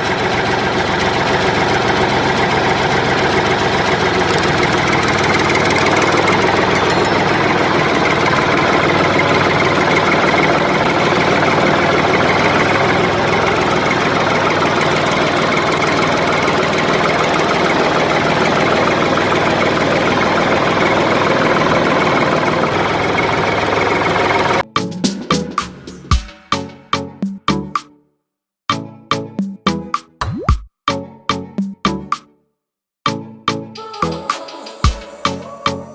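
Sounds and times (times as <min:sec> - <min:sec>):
engine idling: 0:00.0 - 0:24.6.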